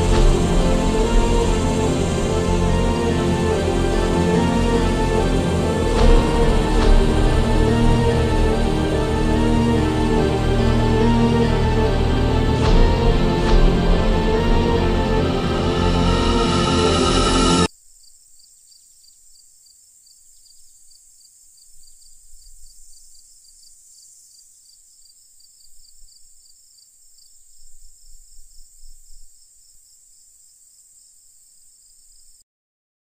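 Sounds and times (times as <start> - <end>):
crickets chirping: 0.0 - 32.4
faint steady hiss: 17.6 - 32.4.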